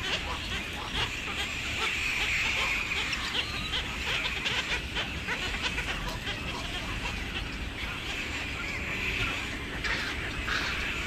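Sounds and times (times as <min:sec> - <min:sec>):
birds chattering: 0:00.0 - 0:11.0.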